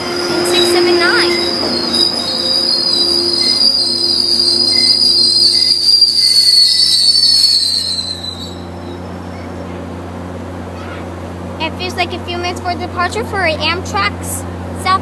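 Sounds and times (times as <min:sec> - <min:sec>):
train wheels squealing: 0:00.0 - 0:09.1.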